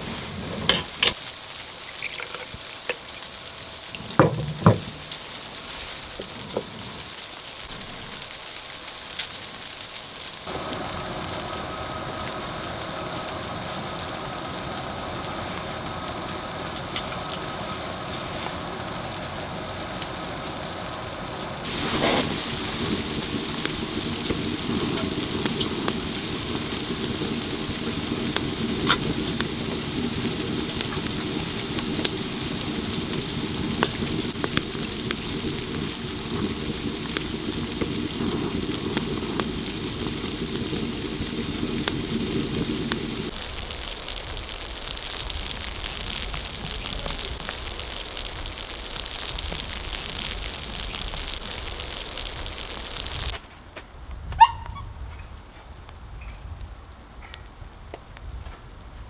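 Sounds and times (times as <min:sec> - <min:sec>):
snow pattering: 0:00.0 - 0:53.4
sharp ticks: 0:22.0 - 0:53.3.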